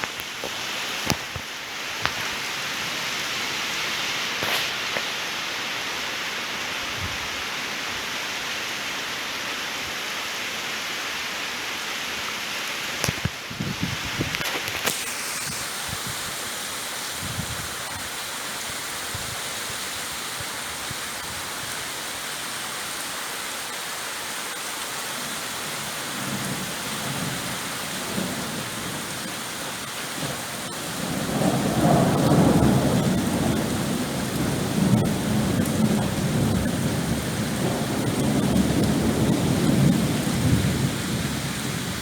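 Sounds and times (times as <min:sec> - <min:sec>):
rain hissing: 0:00.0 - 0:42.0
thunder rumbling: 0:25.5 - 0:42.0.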